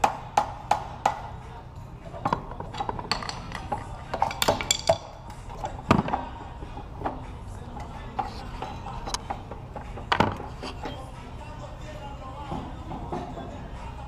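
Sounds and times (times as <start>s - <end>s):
metal tools clicking and clinking: 2.2s - 6.4s, 7.8s - 11.1s.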